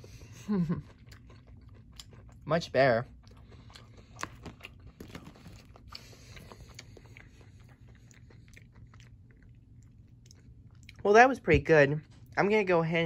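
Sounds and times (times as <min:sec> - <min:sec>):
crunchy chewing: 0:00.0 - 0:11.0.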